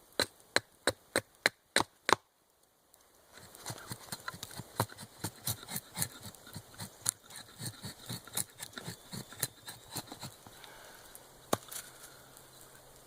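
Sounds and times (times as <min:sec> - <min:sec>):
blade cutting wood: 0:03.4 - 0:10.4.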